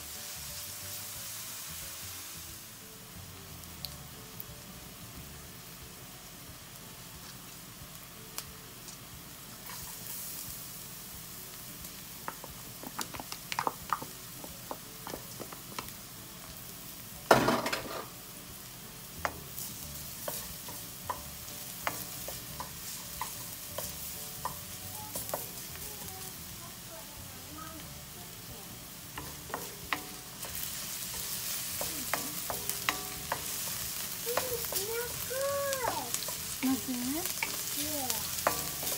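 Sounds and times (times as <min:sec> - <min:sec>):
onion and garlic sizzling: 0:00.0 - 0:38.9
wooden spatula knocking: 0:12.2 - 0:15.8, 0:29.2 - 0:33.7.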